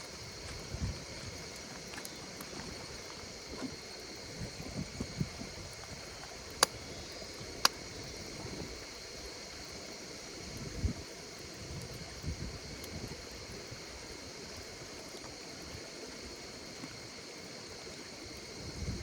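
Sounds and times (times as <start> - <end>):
wood fire crackling: 0.0 - 9.2
insects singing: 0.0 - 19.0.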